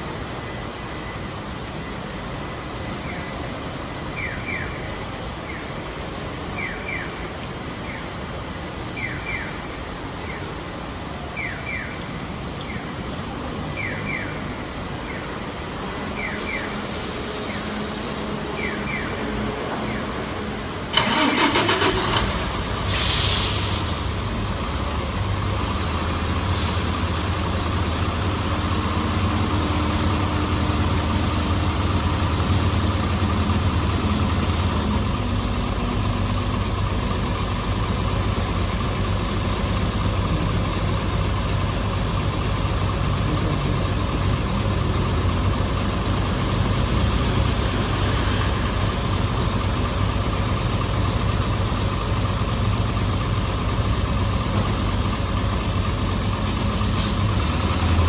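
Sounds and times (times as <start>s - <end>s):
bus diesel engine idling: 0.0s - 58.0s
air hiss: 16.4s - 18.6s, 22.7s - 24.2s, 26.4s - 27.2s.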